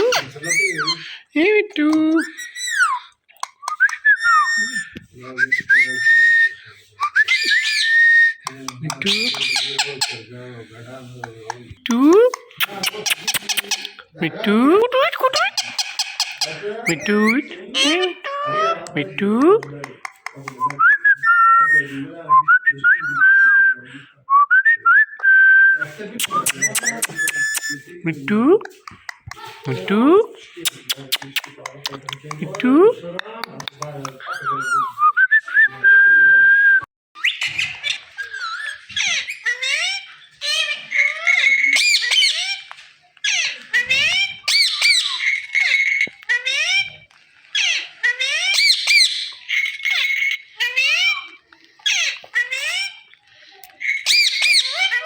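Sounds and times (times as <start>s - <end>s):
parrot whistling: 2.2s - 10.2s, 26.2s - 27.9s, 53.9s - 55.0s
parakeet shrill calls: 5.9s - 10.3s, 15.4s - 18.5s, 37.2s - 46.9s, 47.5s - 53.1s, 53.8s - 55.0s.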